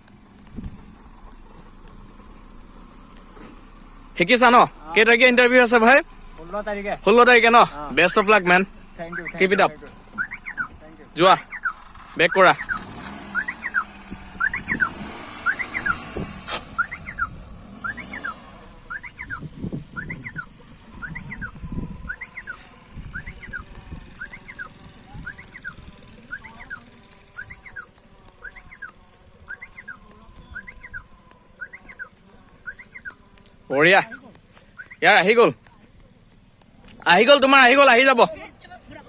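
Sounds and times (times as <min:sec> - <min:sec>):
car engine hum: 0:00.0 - 0:39.0
reverse warning beeper: 0:09.0 - 0:10.8, 0:11.4 - 0:16.1, 0:16.8 - 0:33.2.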